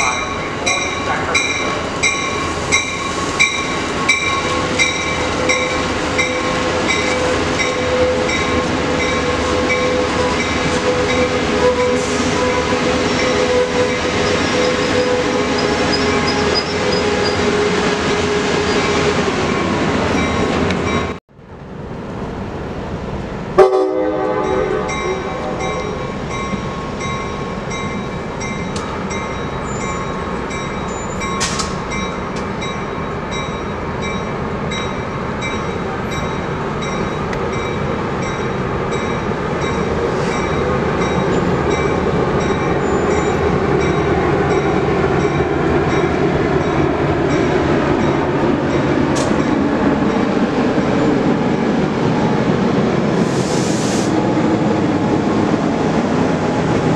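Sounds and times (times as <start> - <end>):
train rumbling: 0.0 - 56.9
train horn blast: 4.5 - 18.9, 23.6 - 26.0.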